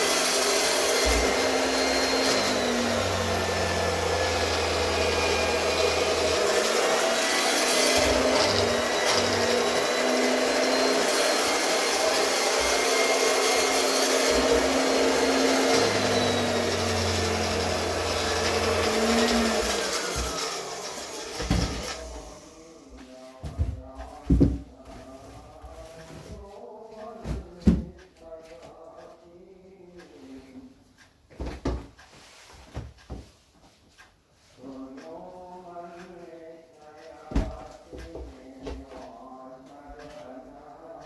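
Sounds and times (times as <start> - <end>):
electric cloth cutter motor hum: 0.0 - 22.6.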